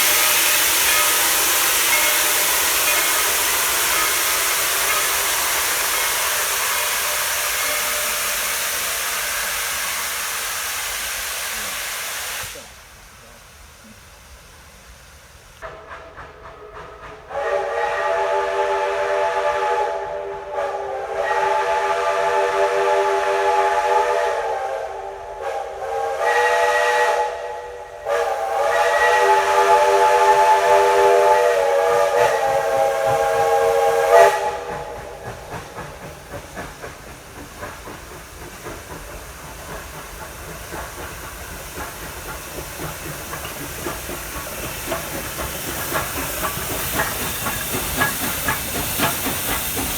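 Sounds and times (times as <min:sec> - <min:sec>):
steam locomotive chime whistle: 0:00.0 - 0:12.9, 0:15.6 - 0:36.2
steam hissing: 0:00.0 - 0:49.9.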